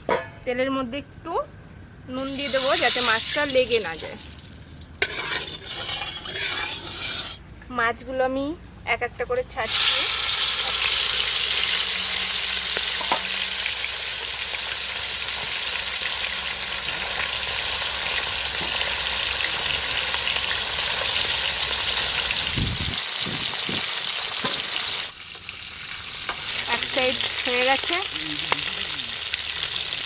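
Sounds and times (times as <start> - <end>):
fish frying in hot oil: 2.3 - 5.8, 9.7 - 30.0.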